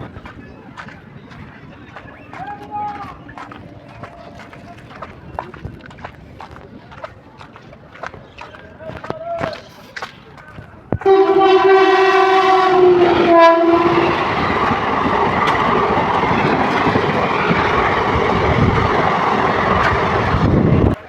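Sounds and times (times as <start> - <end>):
train rushing and rattling on track: 0.0 - 7.4, 10.8 - 21.0
train horn blasts: 11.0 - 14.7.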